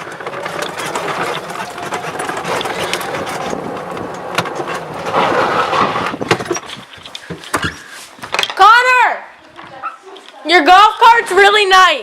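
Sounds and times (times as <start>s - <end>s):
golf cart rumbling and rattling: 0.0s - 8.4s.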